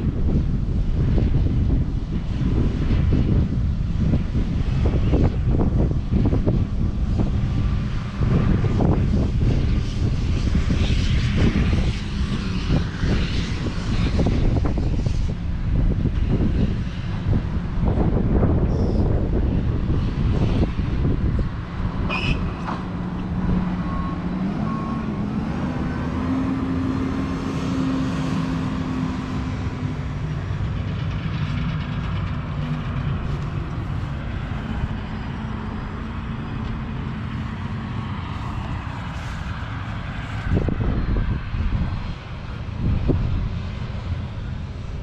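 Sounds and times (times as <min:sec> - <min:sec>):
diesel engine running: 0:11.4 - 0:45.0.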